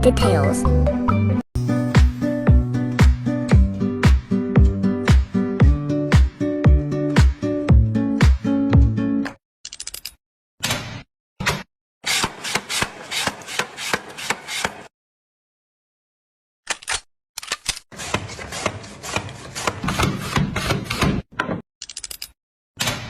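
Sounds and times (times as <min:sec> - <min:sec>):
kitchen gadget knocking and scraping: 0:12.1 - 0:14.9, 0:18.0 - 0:21.6.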